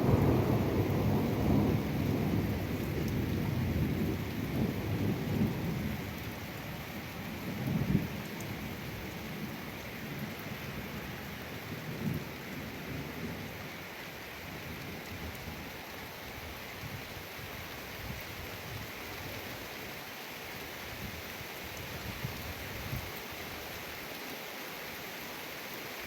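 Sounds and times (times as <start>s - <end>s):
low rolling thunder: 0.0s - 9.6s
rain hissing: 0.0s - 10.2s.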